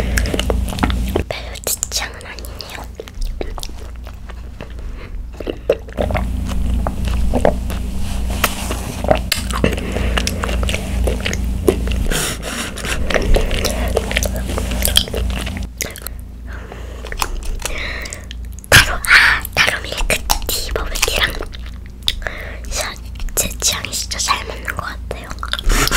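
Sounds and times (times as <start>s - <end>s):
chewing wet clicks and squishes: 0.2s - 7.8s, 13.1s - 16.2s, 17.0s - 18.7s, 19.5s - 23.6s, 24.2s - 25.9s.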